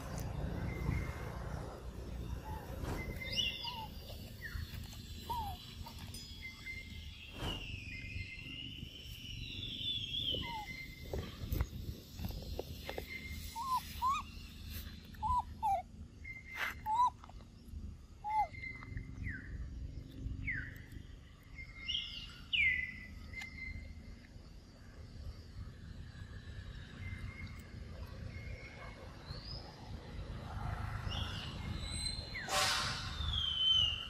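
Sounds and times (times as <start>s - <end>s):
high bird chirps: 0.0s - 17.2s, 31.1s - 34.0s
birds whistling: 0.0s - 24.1s, 31.0s - 34.0s
low outdoor rumble: 0.0s - 34.0s.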